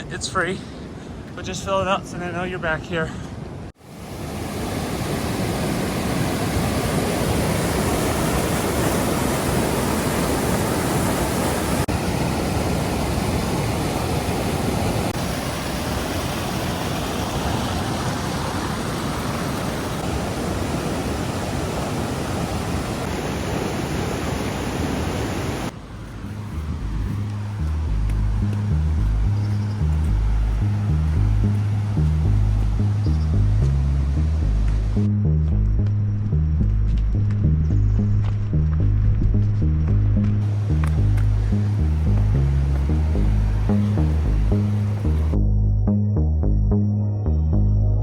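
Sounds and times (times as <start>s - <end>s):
cascading water rushing: 3.8s - 25.8s, 26.9s - 35.0s, 40.4s - 45.4s.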